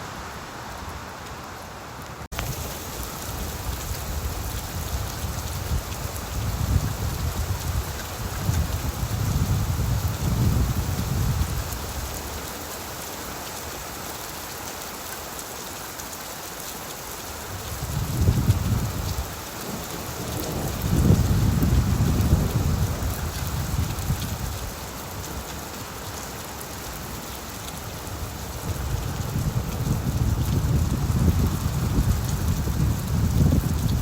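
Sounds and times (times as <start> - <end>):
rain falling on leaves: 0.0 - 34.0
rolling thunder: 20.2 - 24.5.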